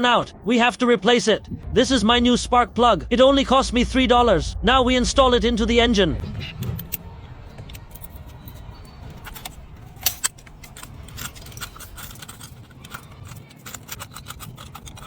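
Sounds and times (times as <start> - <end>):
low steady hum: 0.0 - 15.0
metallic tool clinks: 6.6 - 15.0.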